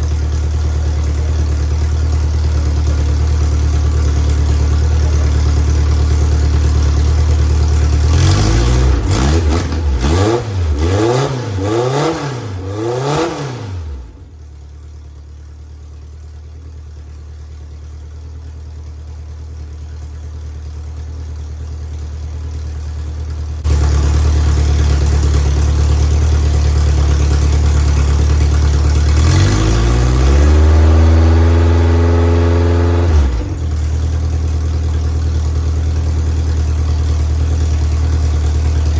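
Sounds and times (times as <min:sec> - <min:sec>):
race car engine revving: 0:08.0 - 0:14.3, 0:28.5 - 0:34.0.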